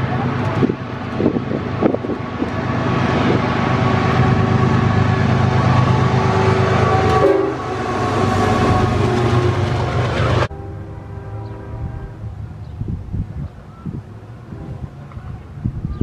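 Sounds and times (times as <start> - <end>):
train rumble: 0.0 - 16.0
train horn sounding a chord: 4.2 - 13.0.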